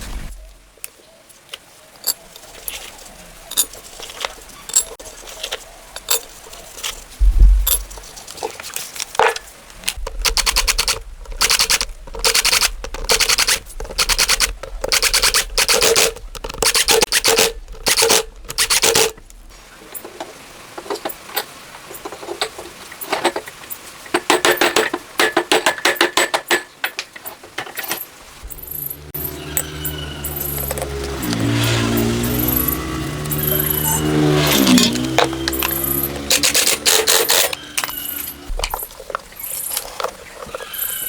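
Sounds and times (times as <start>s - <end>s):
hand tool rasping on metal: 28.6s - 38.5s.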